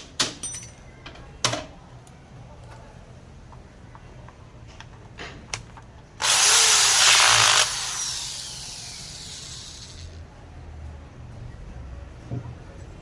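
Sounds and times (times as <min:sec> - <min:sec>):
power tool whining down: 0:06.2 - 0:10.2.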